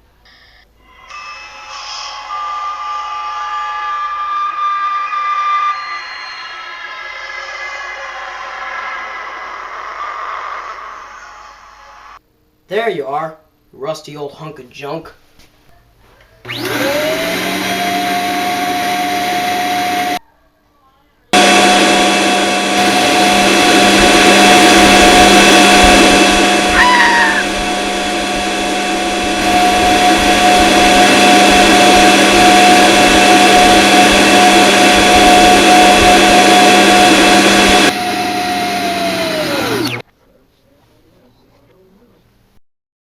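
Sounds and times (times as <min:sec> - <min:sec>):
vacuum cleaner motor whining: 0:05.0 - 0:12.2, 0:16.4 - 0:20.2, 0:21.4 - 0:40.0.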